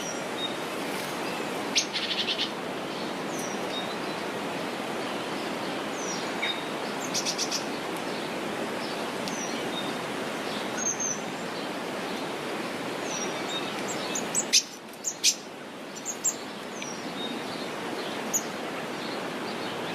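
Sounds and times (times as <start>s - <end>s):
small birds chirping: 1.2s - 11.7s, 12.9s - 19.9s.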